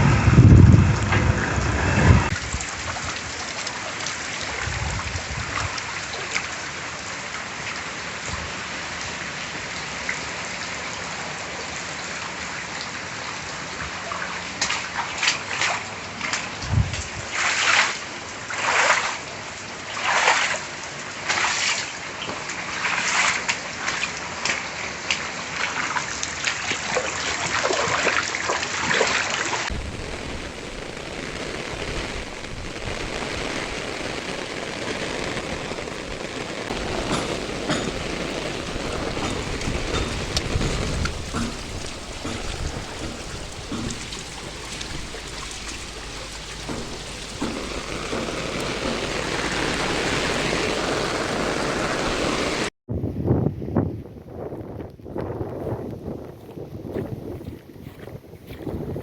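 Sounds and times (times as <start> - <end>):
rain and running water: 0.0 - 52.7
splashing surges: 29.3 - 52.7.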